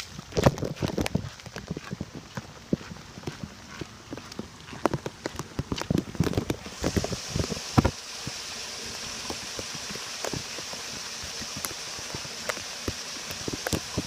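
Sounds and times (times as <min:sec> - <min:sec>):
drips and splashes: 0:04.3 - 0:14.0
water running into sewer: 0:04.8 - 0:14.0.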